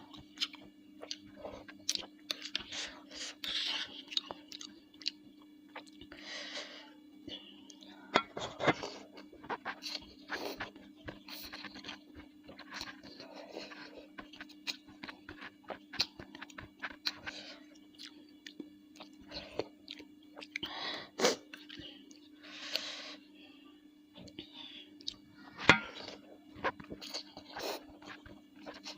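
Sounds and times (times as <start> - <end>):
close chewing with mouth clicks: 0.1 - 6.2, 9.2 - 20.7.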